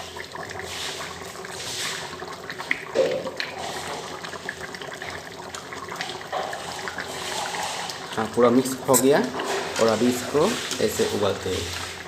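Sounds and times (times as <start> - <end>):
liquid sloshing: 2.9 - 12.0
spoon scraping and clicking on pot: 8.9 - 10.0.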